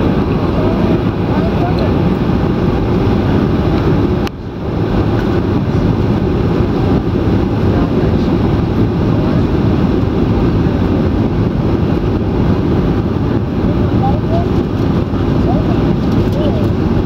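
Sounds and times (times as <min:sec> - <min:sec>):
airflow rush in cabin: 0:00.0 - 0:17.0
jet engines: 0:00.0 - 0:17.0.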